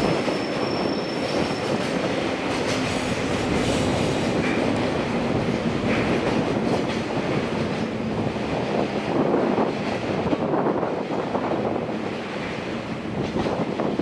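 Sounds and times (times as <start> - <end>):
train wheels on rails: 0.0 - 14.0.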